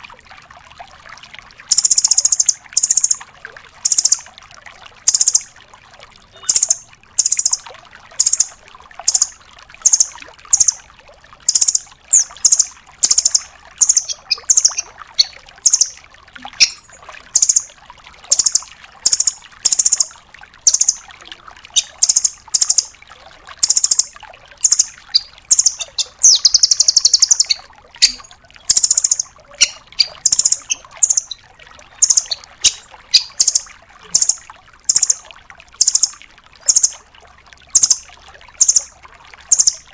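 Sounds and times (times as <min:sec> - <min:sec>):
bird high chips: 0:06.4 - 0:07.6, 0:11.5 - 0:16.0, 0:16.6 - 0:17.7, 0:21.8 - 0:22.9, 0:23.6 - 0:31.4, 0:32.0 - 0:35.2.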